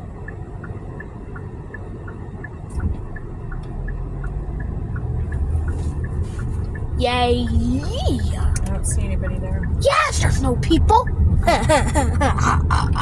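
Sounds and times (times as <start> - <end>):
moving car rumble: 0.0 - 13.0
turn signal ticking: 0.0 - 13.0.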